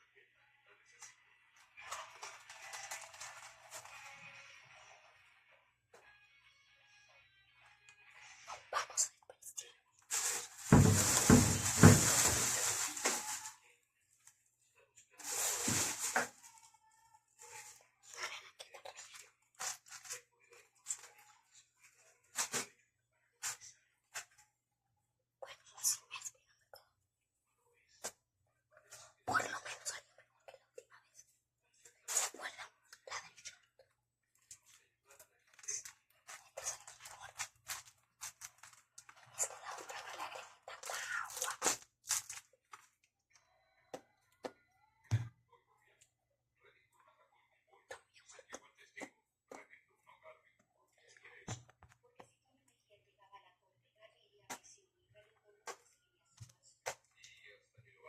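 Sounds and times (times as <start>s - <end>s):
paper and tape crinkling: 1.8s - 4.1s, 10.1s - 13.6s, 15.2s - 16.8s, 19.6s - 20.2s, 35.4s - 43.0s.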